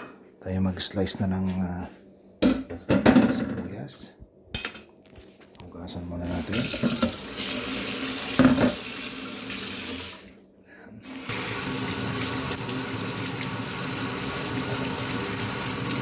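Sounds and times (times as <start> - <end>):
tap running into sink: 6.5 - 7.2, 8.3 - 8.9.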